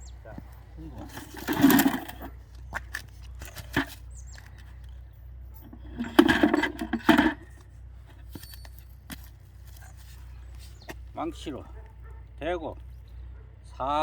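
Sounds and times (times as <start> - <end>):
metallic clinks of tools: 8.3 - 9.1.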